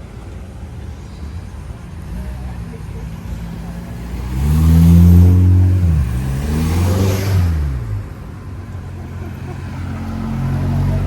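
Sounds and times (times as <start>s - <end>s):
car accelerating past: 2.1s - 8.4s, 9.1s - 11.0s.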